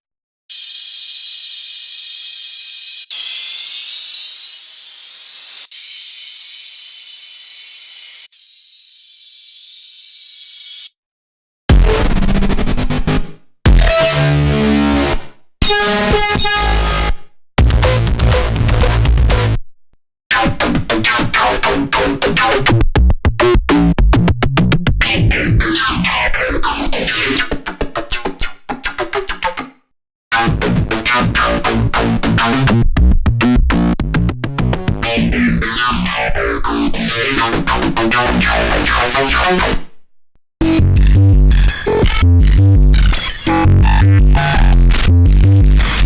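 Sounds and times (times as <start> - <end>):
synthesizer steam-like hiss: 0.5 - 10.9
distorted synthesizer riff: 11.7 - 19.5, 35.0 - 39.8, 40.6 - 46.0.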